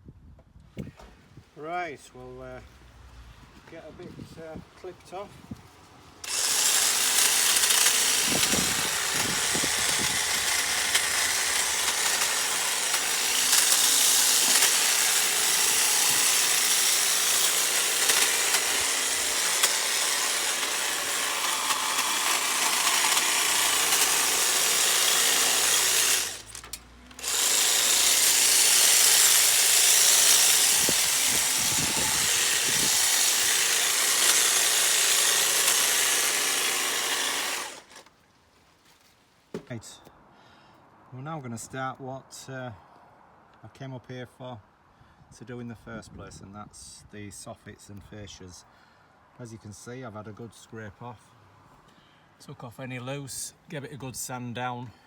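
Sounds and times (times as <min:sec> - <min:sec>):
handheld power tool running: 0:06.2 - 0:38.1.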